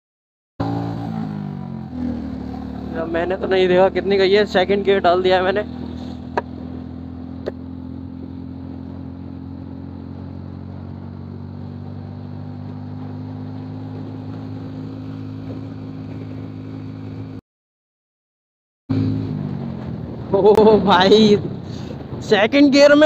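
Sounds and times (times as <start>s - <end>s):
motorcycle engine pulling hard: 0.6s - 17.4s.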